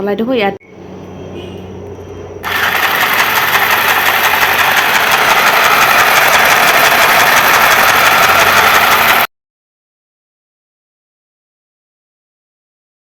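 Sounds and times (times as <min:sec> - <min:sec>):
sewing machine clattering: 0:02.4 - 0:09.3.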